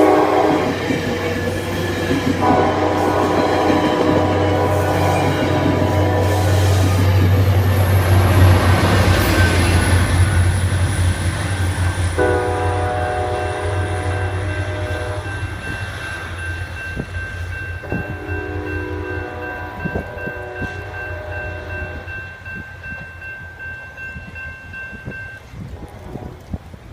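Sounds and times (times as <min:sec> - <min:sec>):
train horn blasts: 0:00.0 - 0:01.3, 0:02.4 - 0:07.3, 0:12.2 - 0:15.6, 0:17.8 - 0:22.1, 0:25.7 - 0:26.5
train rumbling past: 0:00.0 - 0:26.9.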